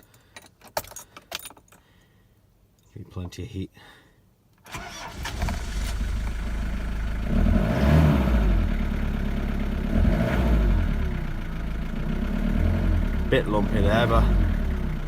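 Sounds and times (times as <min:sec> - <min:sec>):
diesel engine cold starting: 0:04.7 - 0:08.8.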